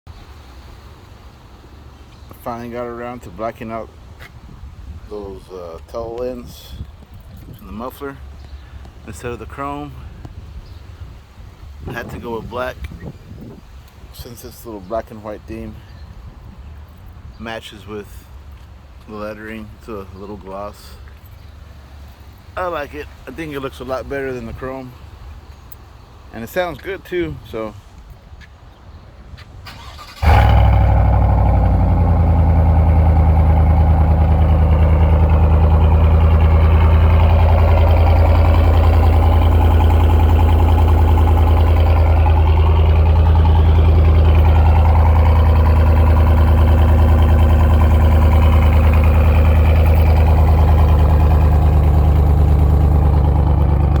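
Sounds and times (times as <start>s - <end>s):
car engine starting and idling: 29.6s - 54.0s.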